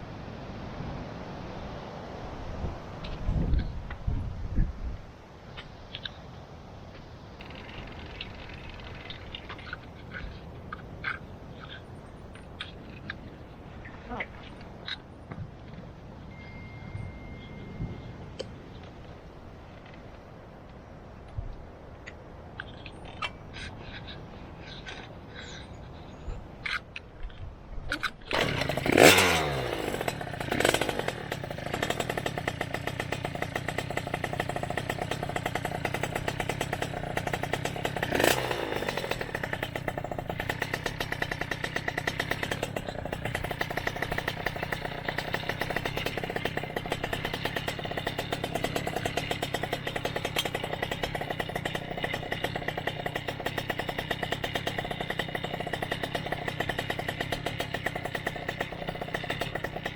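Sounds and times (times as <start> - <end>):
small bicycle engine running: 7.4 - 11.9, 28.3 - 59.9.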